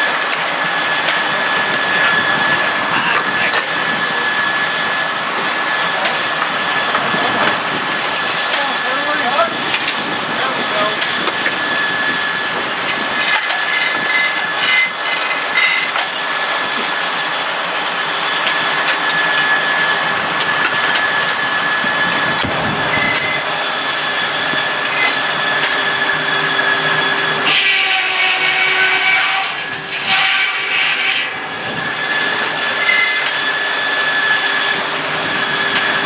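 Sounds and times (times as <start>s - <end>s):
sawmill running: 0.0s - 36.0s
steady high tone: 18.8s - 36.0s
steam whistle blowing: 22.9s - 36.0s.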